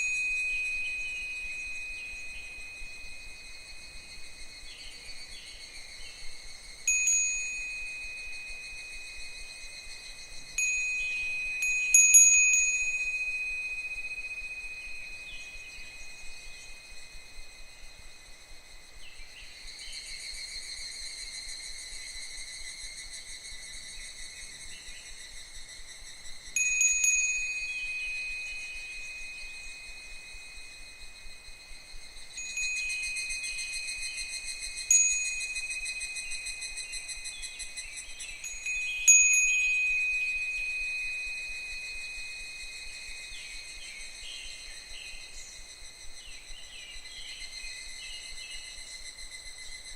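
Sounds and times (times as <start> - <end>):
wind chime ringing: 0.0 - 4.3, 6.8 - 17.6, 26.5 - 45.4
cicadas chorus: 0.0 - 49.9.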